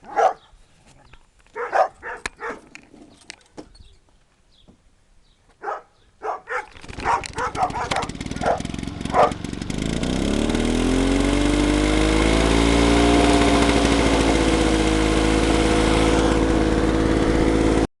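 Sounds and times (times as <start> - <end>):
dog barking: 0.0 - 0.5, 1.5 - 2.7, 5.6 - 9.4
lawn mower engine running: 6.7 - 17.9.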